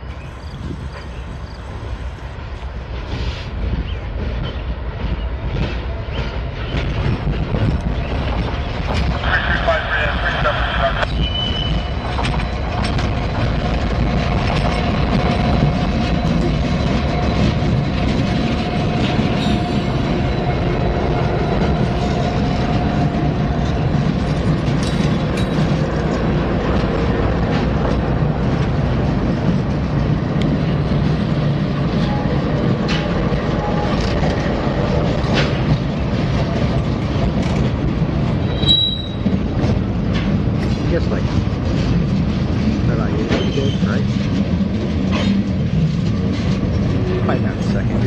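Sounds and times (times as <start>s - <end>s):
diesel locomotives rumbling: 0.0s - 48.0s
wheels clicking over rail joints: 11.8s - 48.0s
brief high squeal: 38.5s - 39.2s.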